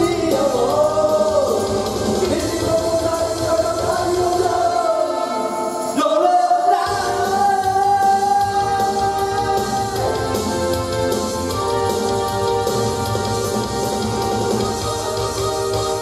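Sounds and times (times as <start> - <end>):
man singing a pop ballad: 0.0 - 10.8
backing music: 0.0 - 16.0.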